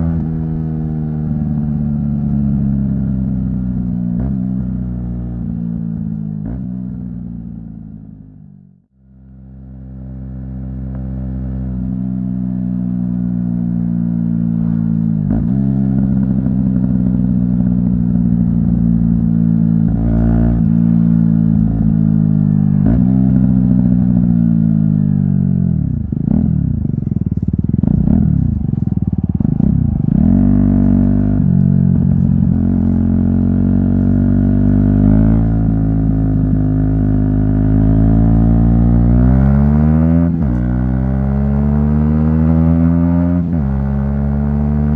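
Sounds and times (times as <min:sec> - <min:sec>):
motorcycle engine revving: 0:00.0 - 0:08.4, 0:09.4 - 0:44.9.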